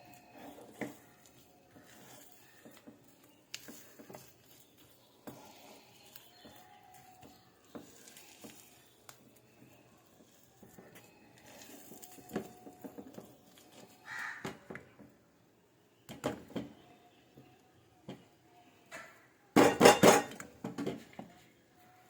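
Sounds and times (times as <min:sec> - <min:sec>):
kitchen utensils and dishes clinking: 0:19.6 - 0:21.1.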